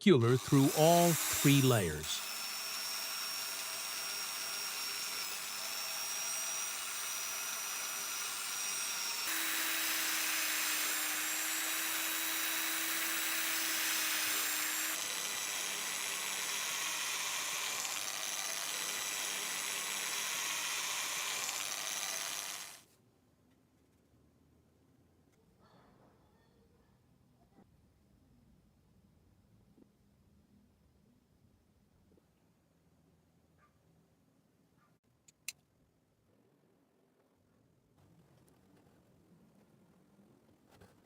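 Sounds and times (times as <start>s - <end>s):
drill press drilling leather: 0.2s - 22.8s.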